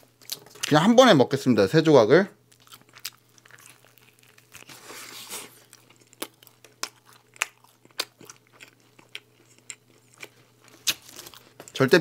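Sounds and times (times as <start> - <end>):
crunchy pizza chewing: 2.5 - 11.8.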